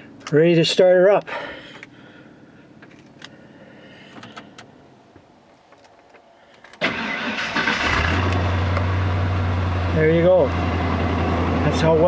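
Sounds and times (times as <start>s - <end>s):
starter cranking truck engine: 6.7s - 8.8s.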